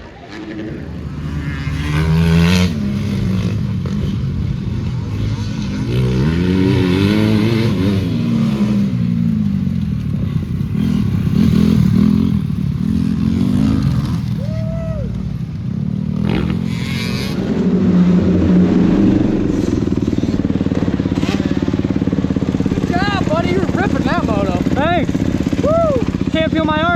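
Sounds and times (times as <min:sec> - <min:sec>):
dirt bike engine revving: 0:00.0 - 0:26.9.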